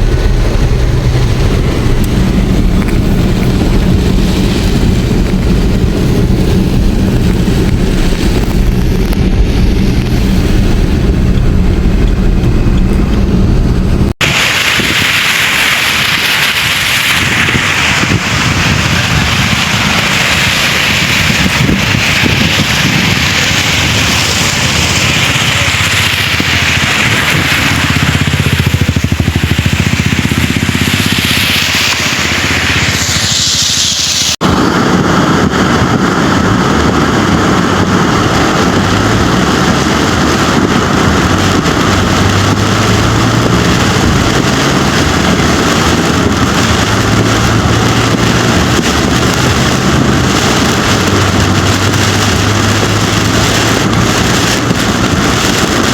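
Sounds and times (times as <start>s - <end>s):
heavy rain: 0.0s - 55.9s
rushing floodwater: 14.2s - 55.9s.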